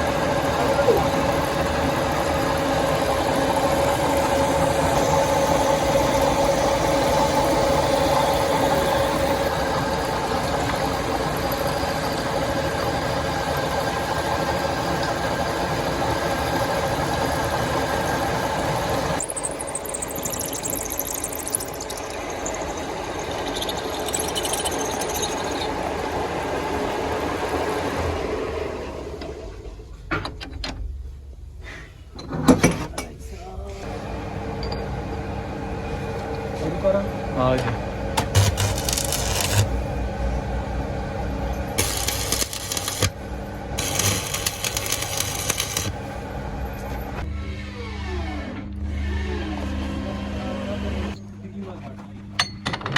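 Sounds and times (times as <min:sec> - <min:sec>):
metalworking machinery running: 0:00.0 - 0:29.6, 0:33.8 - 0:52.9
motor hum: 0:00.0 - 0:30.1, 0:33.8 - 0:52.3
fast high-pitched ticking: 0:19.2 - 0:25.7
hissing metalworking noise: 0:36.3 - 0:47.2.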